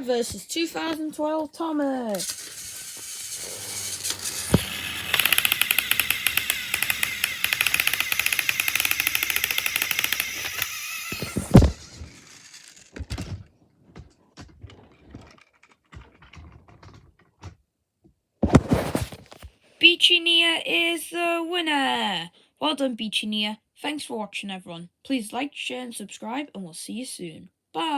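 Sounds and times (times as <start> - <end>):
plastic toys clattering: 1.6 - 17.6
toy engines clicking gears: 2.1 - 13.4.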